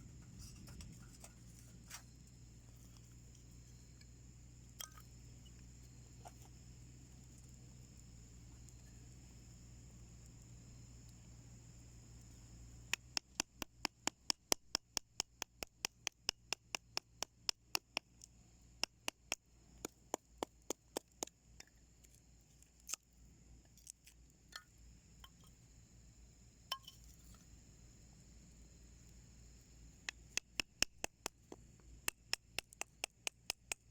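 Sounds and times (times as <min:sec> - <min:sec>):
wood crackling in a stove: 0:00.0 - 0:13.2.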